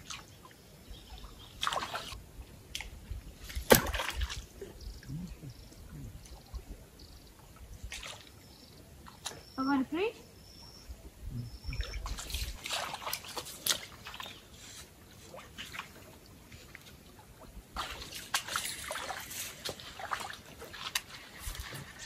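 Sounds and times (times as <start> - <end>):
water splashing against boat: 0.0 - 5.1, 11.6 - 22.0.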